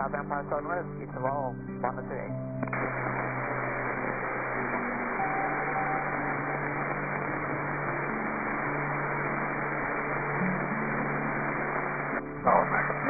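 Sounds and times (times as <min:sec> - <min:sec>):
muffled helicopter hiss: 0:02.2 - 0:13.0
low hum: 0:02.5 - 0:12.4.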